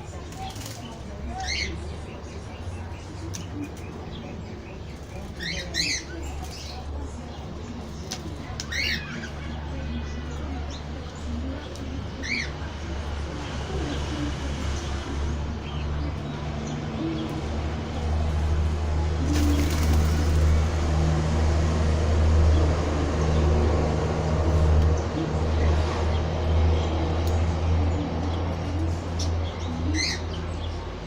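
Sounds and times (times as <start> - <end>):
pigeons cooing: 19.2 - 20.8.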